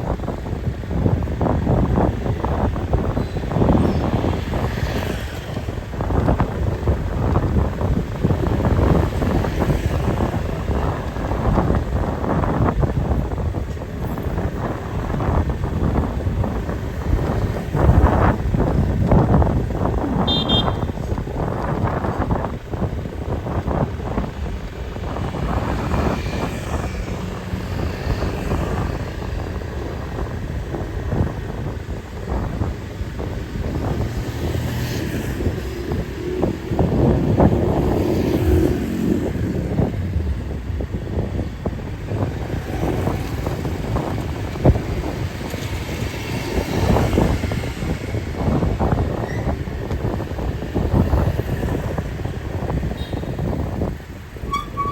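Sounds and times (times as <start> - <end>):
vehicle engine rumbling: 0.0 - 54.9
wind buffeting microphone: 0.0 - 54.9.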